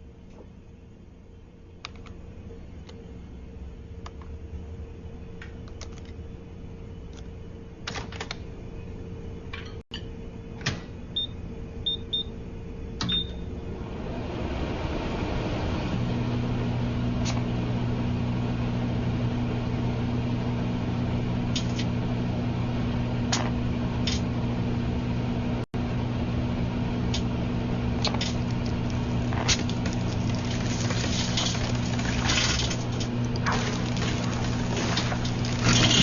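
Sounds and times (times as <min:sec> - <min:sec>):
microwave oven humming: 0:00.0 - 0:36.0
sharp crackles and pops: 0:28.0 - 0:36.0.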